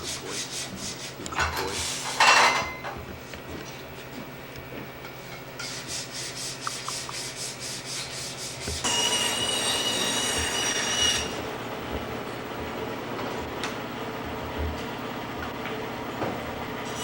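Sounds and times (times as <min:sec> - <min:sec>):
sanding strokes: 0:00.0 - 0:02.0, 0:05.6 - 0:11.3
power tool whine: 0:08.8 - 0:17.0.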